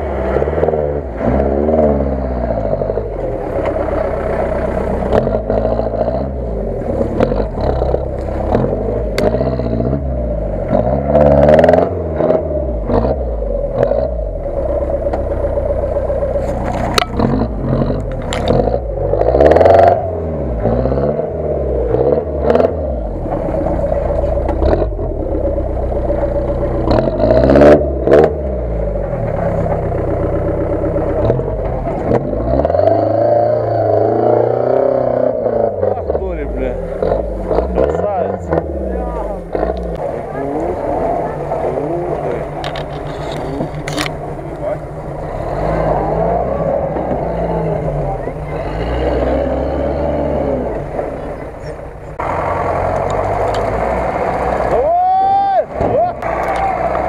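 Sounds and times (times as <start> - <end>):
off-road vehicle engine revving: 0.0 - 57.0
body and suspension clattering: 16.1 - 18.8, 35.8 - 45.4.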